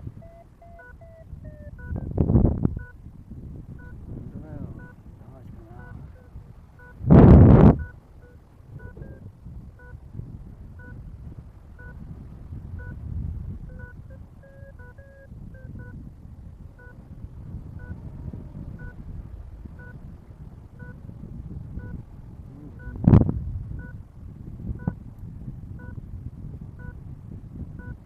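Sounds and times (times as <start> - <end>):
variometer beeping: 0.0 - 3.0, 3.8 - 5.0, 5.7 - 10.0, 10.8 - 11.0, 11.8 - 12.0, 12.8 - 13.0, 13.6 - 16.1, 16.8 - 17.0, 17.8 - 19.0, 19.7 - 20.0, 20.8 - 21.0, 21.8 - 22.0, 22.8 - 23.2, 23.8 - 24.0, 24.8 - 25.0, 25.8 - 26.0, 26.8 - 27.0, 27.8 - 28.0
wind rumbling on microphone: 0.0 - 28.0.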